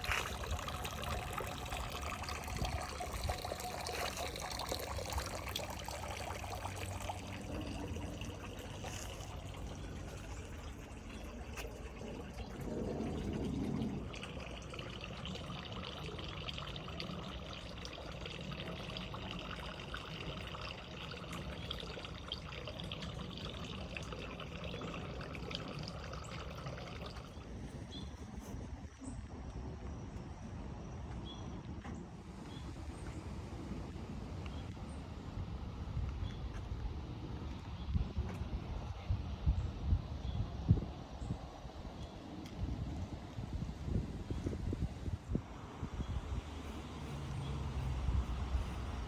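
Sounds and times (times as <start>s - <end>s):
water pouring and trickling: 0.0s - 28.6s, 41.8s - 49.0s.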